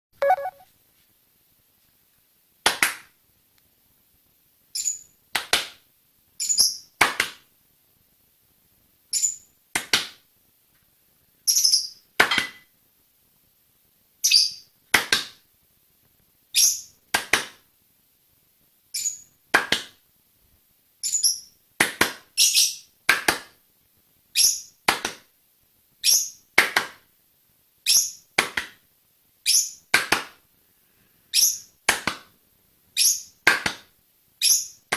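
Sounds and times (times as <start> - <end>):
parrot chirping: 0.2 - 0.7, 31.3 - 31.7, 33.0 - 33.3, 34.4 - 34.8.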